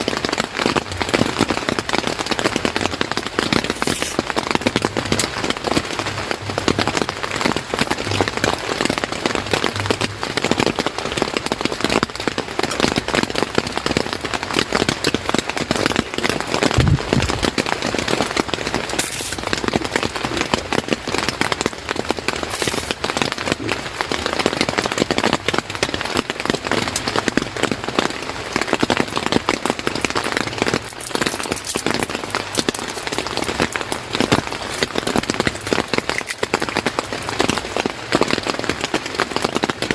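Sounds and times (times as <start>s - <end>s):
steady rain: 0.0s - 39.9s
low thump: 16.8s - 17.4s.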